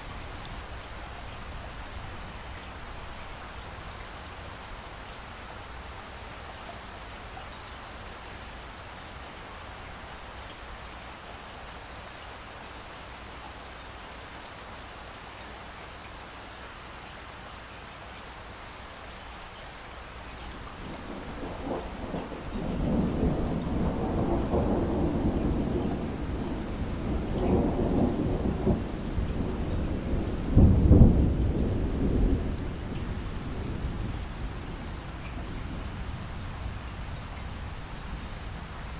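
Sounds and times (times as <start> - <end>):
rain hiss: 0.0 - 38.9
rolling thunder rumble: 20.7 - 38.9.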